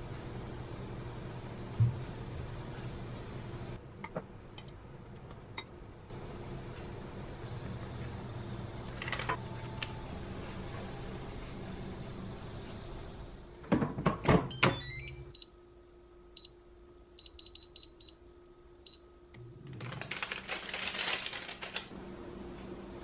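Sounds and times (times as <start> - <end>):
air fryer basket clunks: 13.6 - 14.8
paper rustling: 19.7 - 21.9.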